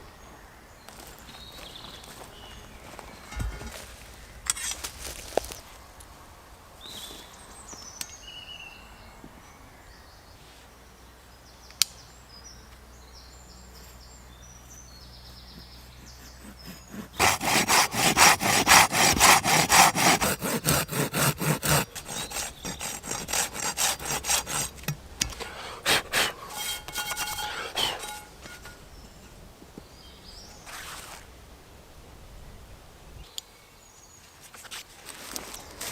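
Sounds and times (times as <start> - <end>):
hand saw cutting wood: 15.8 - 28.8.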